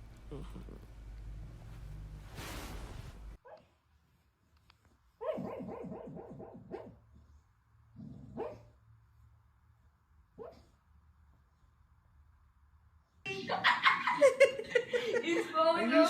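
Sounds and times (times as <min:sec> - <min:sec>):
dog yipping: 0:05.2 - 0:06.9
dog barking: 0:05.2 - 0:07.0, 0:08.3 - 0:08.7, 0:10.4 - 0:10.7.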